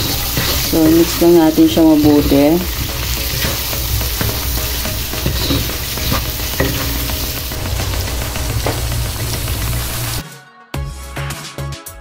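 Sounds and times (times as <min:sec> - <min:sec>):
wooden spatula scraping pan: 0:00.0 - 0:09.4
shrimp sizzling in a wok: 0:00.0 - 0:10.2.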